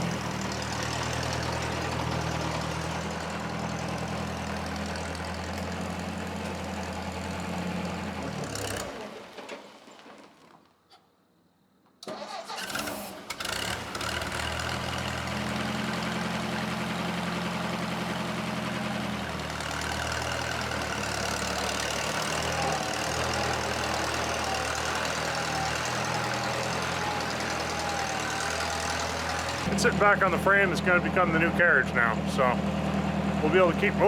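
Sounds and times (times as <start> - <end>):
engine idling: 0.0 - 9.0, 13.2 - 34.0
engine cranking and starting: 8.2 - 10.7, 12.0 - 33.8.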